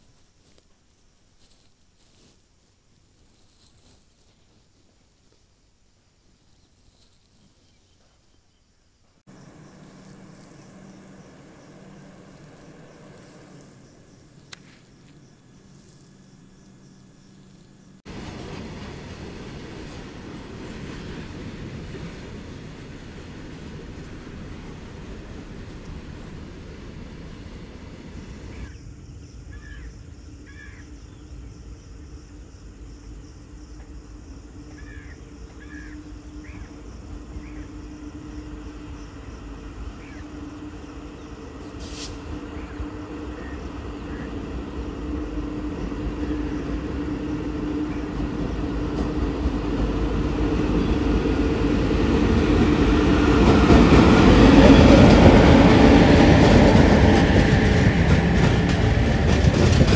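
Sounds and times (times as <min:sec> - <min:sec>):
train hum: 0:00.0 - 0:59.9
wheels rushing on rails: 0:09.3 - 0:28.7, 0:35.6 - 0:59.9.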